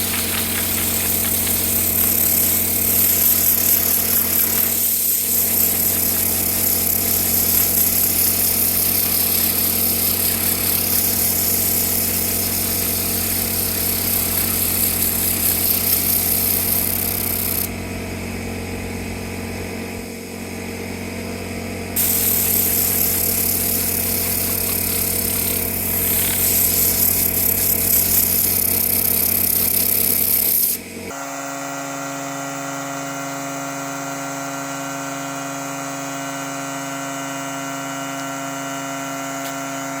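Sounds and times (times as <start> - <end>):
rushing hiss: 0.0 - 17.6, 22.0 - 30.7
power tool motor humming: 0.0 - 17.8, 22.0 - 40.0.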